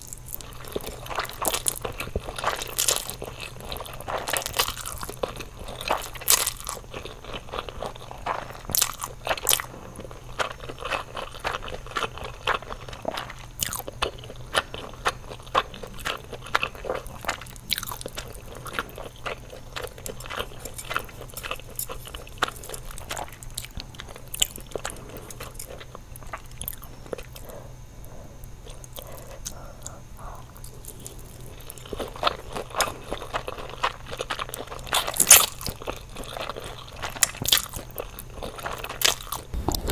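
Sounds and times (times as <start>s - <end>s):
crunchy food being chewed: 0.0s - 39.9s.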